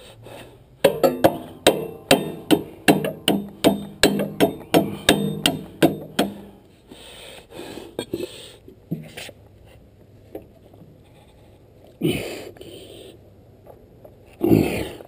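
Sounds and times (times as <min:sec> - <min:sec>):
hammer striking metal: 0:00.8 - 0:06.6
scattered knocks and rustles: 0:00.8 - 0:06.6.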